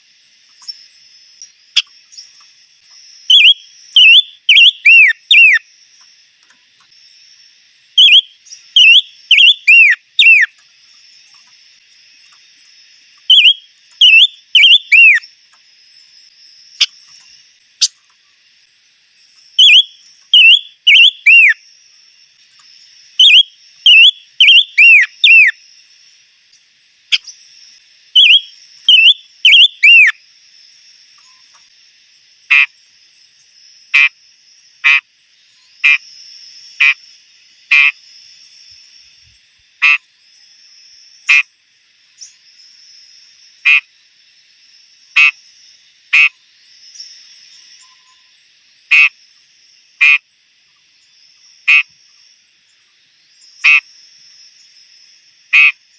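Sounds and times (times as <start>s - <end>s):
bird croaking call: 3.3s - 5.6s, 8.0s - 10.6s, 13.3s - 15.2s, 19.6s - 21.6s, 23.2s - 25.6s, 28.2s - 30.2s, 34.8s - 35.0s, 48.9s - 49.2s, 50.0s - 50.2s, 51.7s - 51.9s
bird whistling downward notes: 3.3s - 5.6s, 8.0s - 10.5s, 13.3s - 15.2s, 19.6s - 21.6s, 23.2s - 25.5s, 28.2s - 30.2s.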